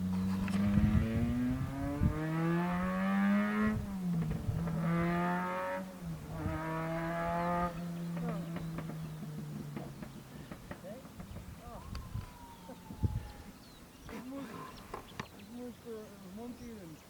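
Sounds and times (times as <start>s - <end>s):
car engine accelerating hard: 0.0s - 11.4s.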